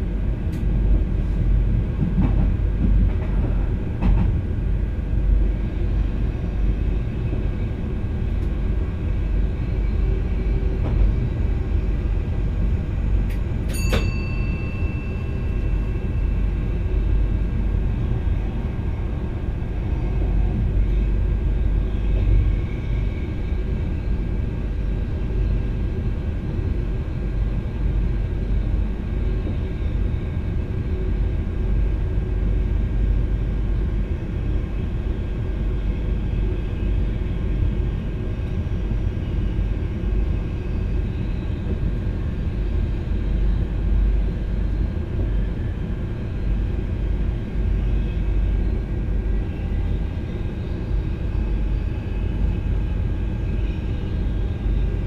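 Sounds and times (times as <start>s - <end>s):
electric train running rumble: 0.0s - 55.0s
short high ringing tone: 13.7s - 16.0s.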